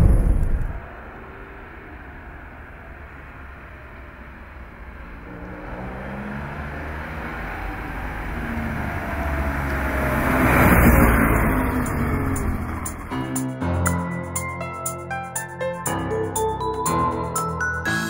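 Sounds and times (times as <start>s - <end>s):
car engine passing by: 0.0s - 13.5s.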